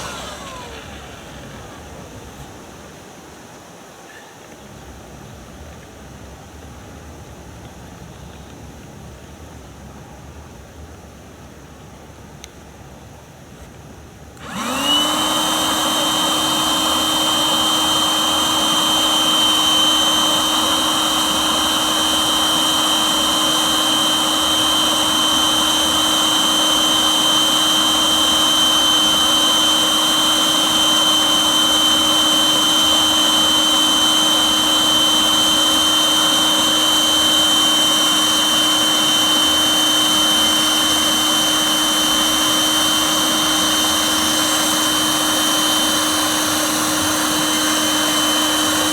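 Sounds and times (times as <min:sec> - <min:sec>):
electric air pump whining: 0:00.0 - 0:03.3, 0:14.4 - 0:48.9.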